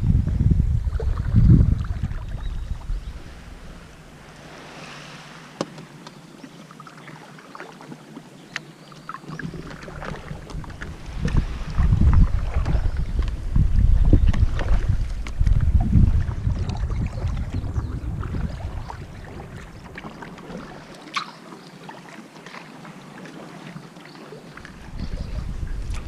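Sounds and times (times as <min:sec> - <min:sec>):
wind rumble on microphone: 0:00.0 - 0:06.5, 0:09.4 - 0:21.0, 0:24.6 - 0:26.0
paddle splashes: 0:00.9 - 0:26.0.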